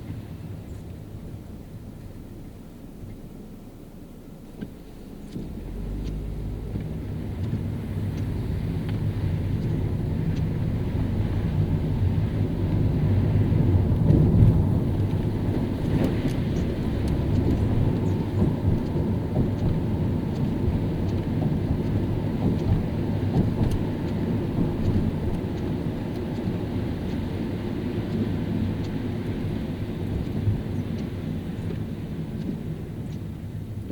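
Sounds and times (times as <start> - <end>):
car tyres on wet road: 0.0 - 33.9
faint clicks: 30.0 - 33.4.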